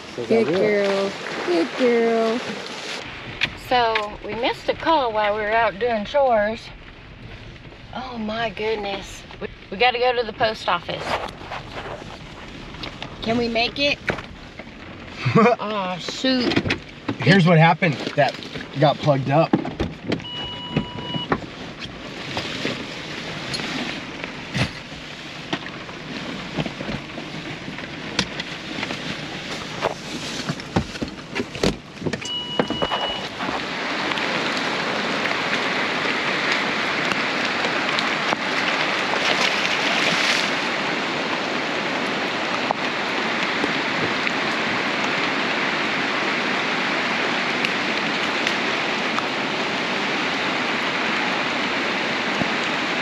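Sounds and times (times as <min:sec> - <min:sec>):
heavy rain hissing: 0:00.0 - 0:16.5, 0:33.2 - 0:39.7
short electronic beep: 0:20.2 - 0:21.3, 0:32.2 - 0:33.3.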